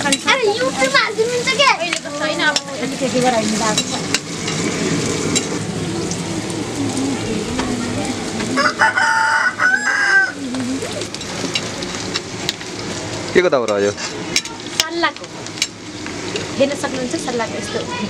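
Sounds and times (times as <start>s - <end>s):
meat and onions sizzling in oil: 0.0s - 18.0s
rooster crowing: 8.4s - 10.5s.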